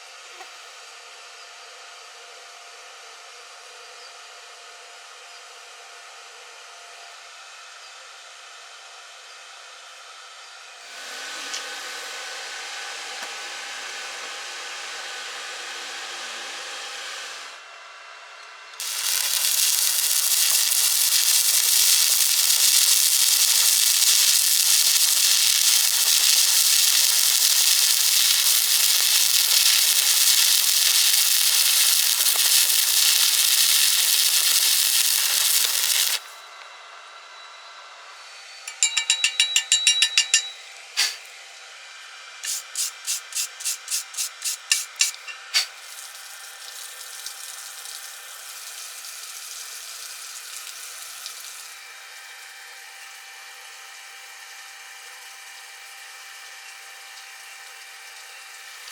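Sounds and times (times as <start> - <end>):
welding arc crackling: 18.8 - 36.4, 42.4 - 51.7.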